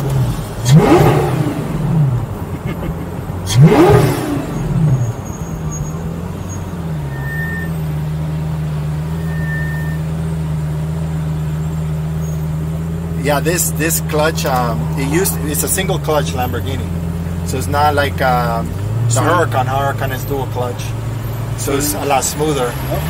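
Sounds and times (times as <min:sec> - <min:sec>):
sports car engine revving and idling: 0:00.0 - 0:23.0.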